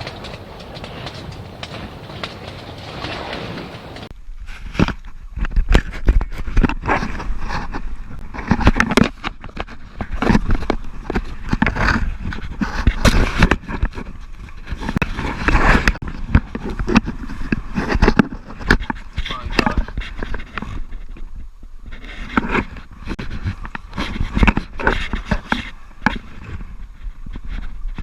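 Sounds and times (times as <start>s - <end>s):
rough scraping: 0.0s - 28.0s.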